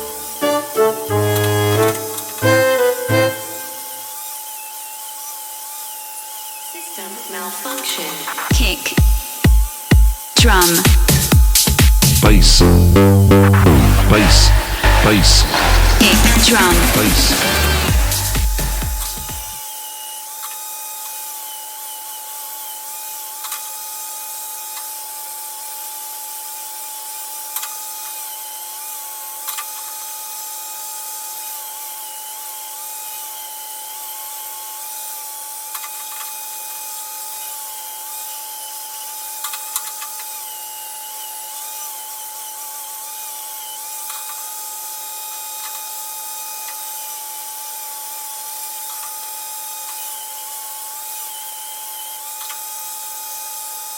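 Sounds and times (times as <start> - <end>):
electric grinder whining: 14.5 - 19.4.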